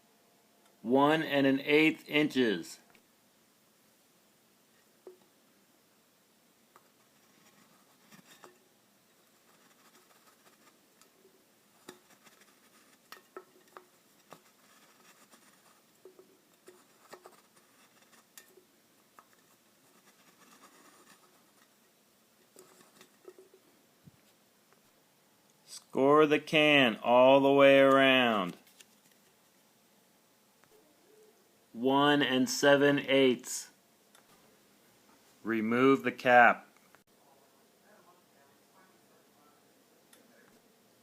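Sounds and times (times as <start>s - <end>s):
soft scraping of a can: 6.8s - 24.4s.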